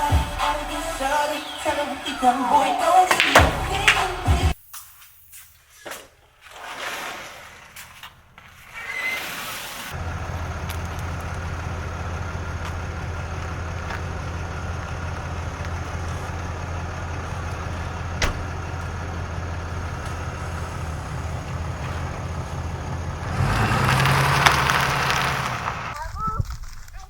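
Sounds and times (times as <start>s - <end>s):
vehicle engine running: 10.0s - 26.1s.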